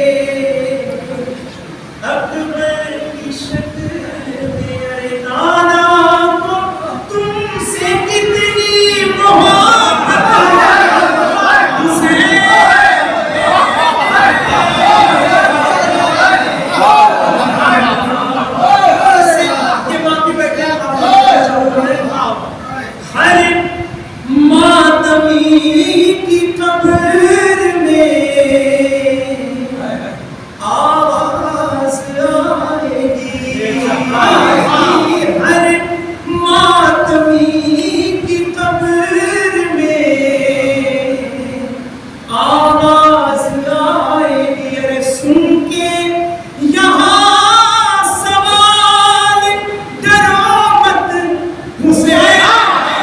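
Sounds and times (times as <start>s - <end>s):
person singing devotional verse: 0.0s - 22.1s, 23.1s - 53.0s
man chanting: 18.8s - 52.8s.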